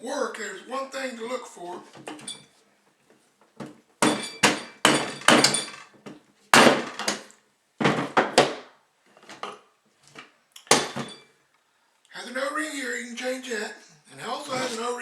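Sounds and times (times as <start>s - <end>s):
metal parts knocking and clanking: 4.0s - 5.9s.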